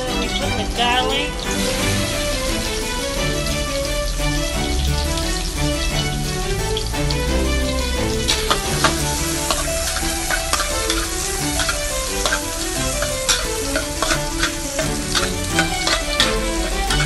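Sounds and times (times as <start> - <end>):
background music with held notes: 0.0 - 17.0
food sizzling in oil: 0.1 - 5.6, 6.7 - 17.0
metal spatula scraping pan: 8.1 - 17.0.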